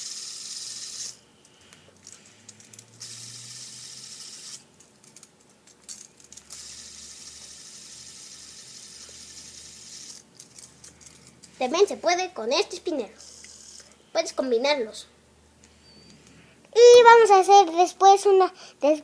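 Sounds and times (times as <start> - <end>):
spinners clicking and rattling: 0.0 - 1.2, 2.0 - 11.9, 12.6 - 14.0
fidget spinners whirring: 0.0 - 15.0.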